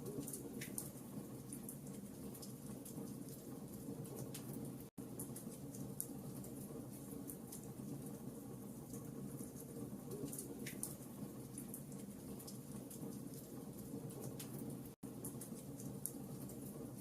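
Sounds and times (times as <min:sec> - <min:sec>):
fire crackling and popping: 0:00.0 - 0:16.9.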